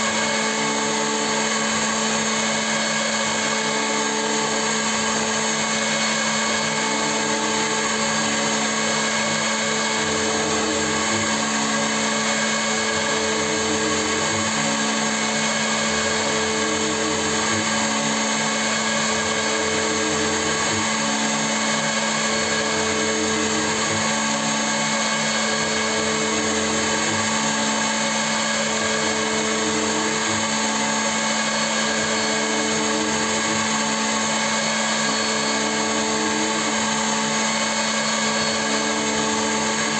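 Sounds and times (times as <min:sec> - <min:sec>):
milling machine motor whine: 0:00.0 - 0:39.9.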